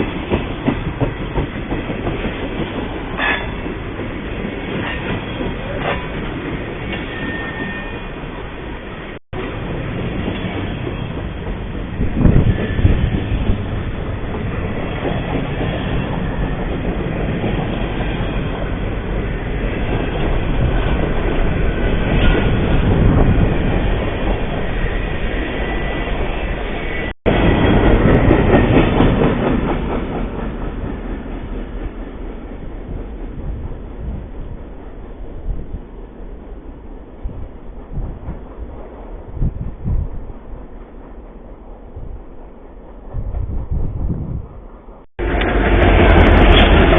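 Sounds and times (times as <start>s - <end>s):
train rolling past: 0.0s - 46.9s.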